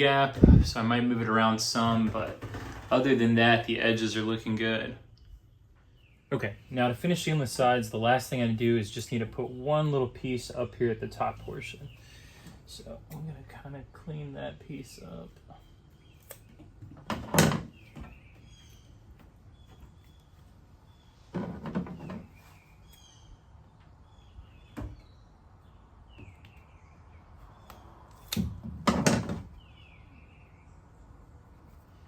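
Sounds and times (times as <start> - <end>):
birds chirping faintly: 0.0 - 32.0
rubbing and knocking on tailgate: 21.2 - 22.6.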